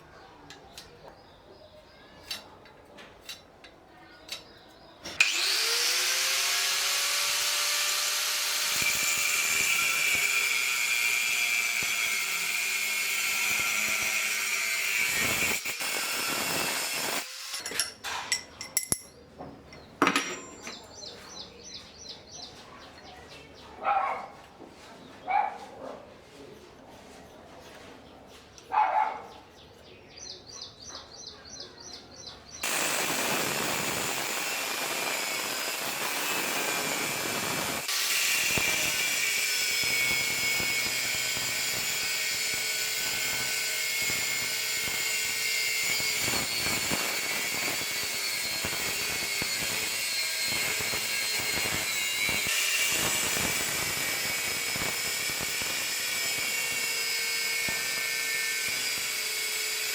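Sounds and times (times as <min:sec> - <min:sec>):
power tool whining on metal: 0:05.0 - 0:18.0, 0:32.6 - 0:59.9.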